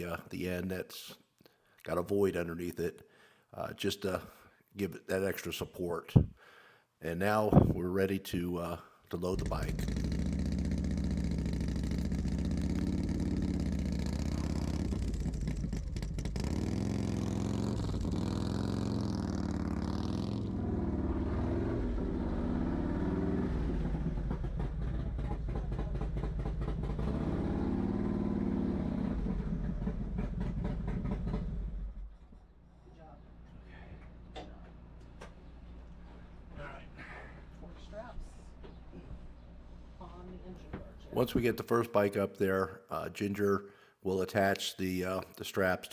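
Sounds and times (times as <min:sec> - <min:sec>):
motorcycle engine running: 0:09.3 - 0:32.2.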